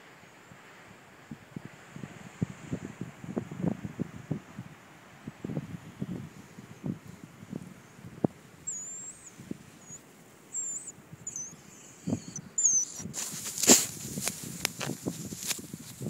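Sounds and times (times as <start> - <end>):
bird squeaking: 8.7 - 13.1.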